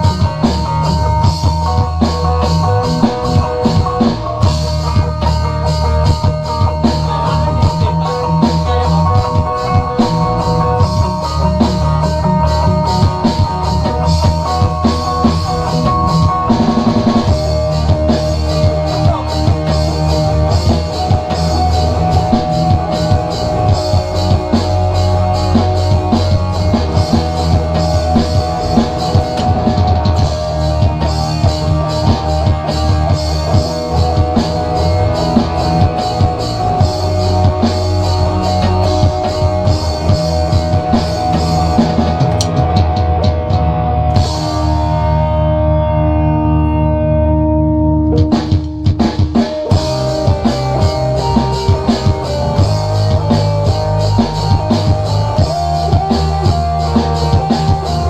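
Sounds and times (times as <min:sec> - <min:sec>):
drum kit beat: 0:00.0 - 0:46.0, 0:48.0 - 0:58.0
live rock band: 0:00.0 - 0:58.0.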